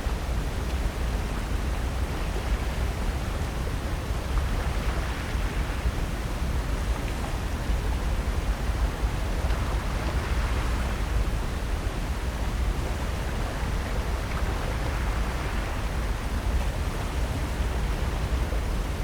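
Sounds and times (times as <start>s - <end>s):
ocean surf: 9.6s - 19.0s.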